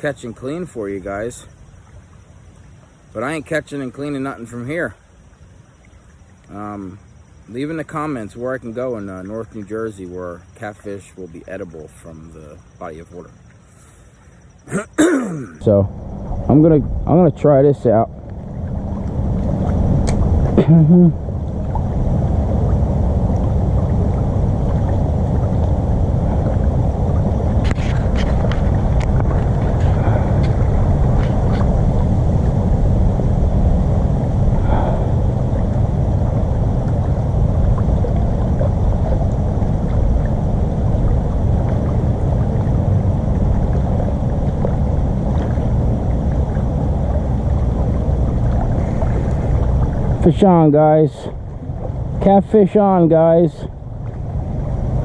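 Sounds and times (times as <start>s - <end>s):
wind buffeting microphone: 16.0s - 55.0s.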